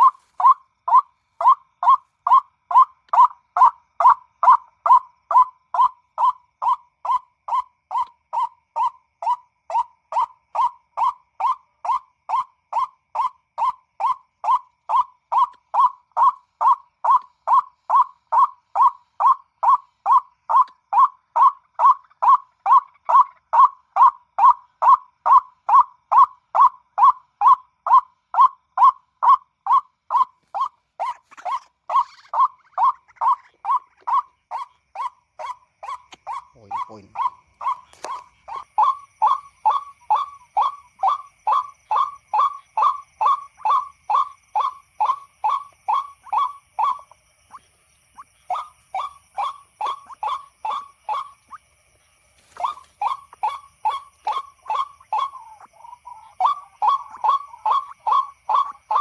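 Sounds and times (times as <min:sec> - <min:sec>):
bird call through loudspeaker: 0:35.4 - 0:47.0, 0:48.4 - 0:51.4, 0:52.6 - 0:59.0.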